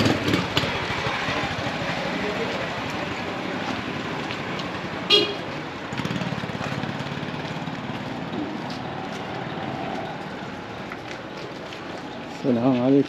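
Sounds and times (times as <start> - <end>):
engine running: 0.0 - 12.2
road noise: 0.0 - 13.0
vehicle horn toot: 5.1 - 5.4.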